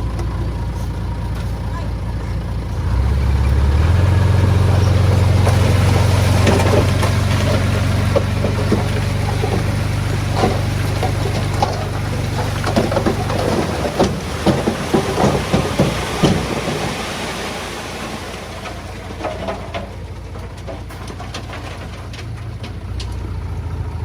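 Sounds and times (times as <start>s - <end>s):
heavy diesel engine revving: 0.0s - 19.7s
knocks and clatter: 4.4s - 23.4s.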